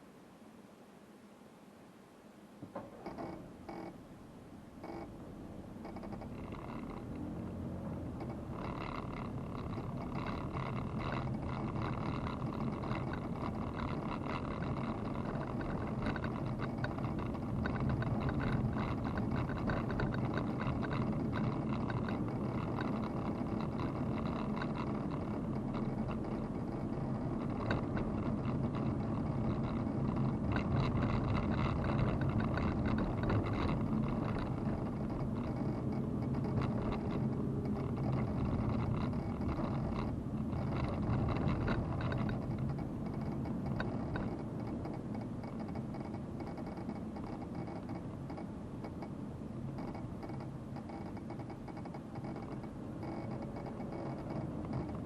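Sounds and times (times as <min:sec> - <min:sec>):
road and tyre noise: 0:02.6 - 0:55.0
car engine running: 0:04.9 - 0:55.0.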